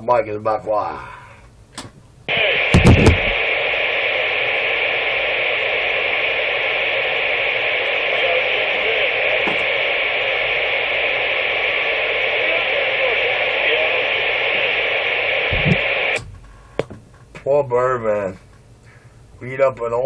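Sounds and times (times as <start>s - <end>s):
radio static hiss: 2.2s - 17.5s
low thumps: 2.7s - 3.4s, 15.5s - 16.9s.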